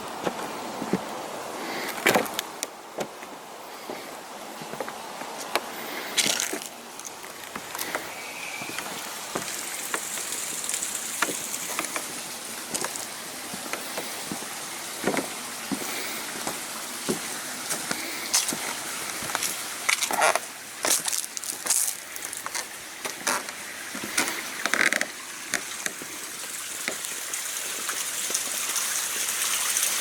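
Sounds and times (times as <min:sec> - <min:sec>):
footsteps crunching on gravel: 0:06.1 - 0:10.6, 0:12.7 - 0:24.9
stones clicking underfoot: 0:06.2 - 0:08.1, 0:12.7 - 0:13.1, 0:19.3 - 0:23.4.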